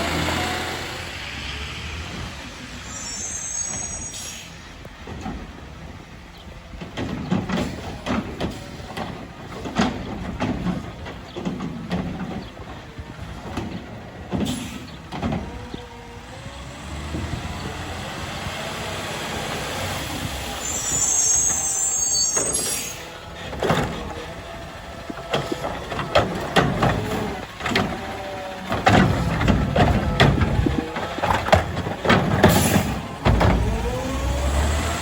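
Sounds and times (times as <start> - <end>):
garbage truck: 0.0 - 35.0
air brake hiss: 2.9 - 4.7, 14.5 - 14.9, 20.6 - 23.1
sharp knocks and clanks: 23.4 - 34.4.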